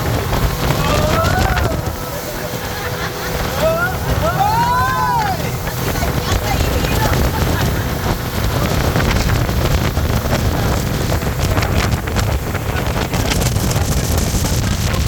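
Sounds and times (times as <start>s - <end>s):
rushing water: 0.0s - 15.0s
speedboat engine rumble: 0.0s - 15.0s
wind buffeting microphone: 0.0s - 15.0s.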